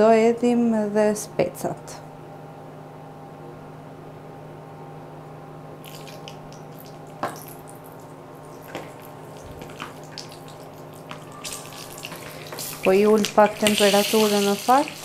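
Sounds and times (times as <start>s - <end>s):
induction hob hum: 0.0s - 15.0s
peppers sizzling in oil: 8.8s - 15.0s.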